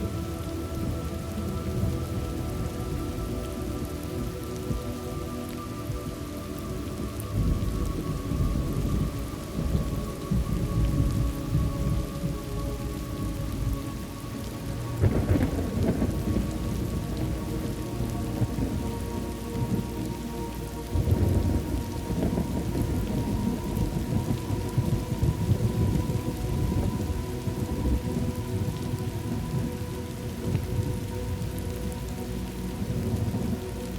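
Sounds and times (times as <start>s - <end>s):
steady rain: 0.0s - 33.9s
rolling thunder: 6.8s - 13.8s, 14.9s - 20.2s, 20.9s - 31.9s.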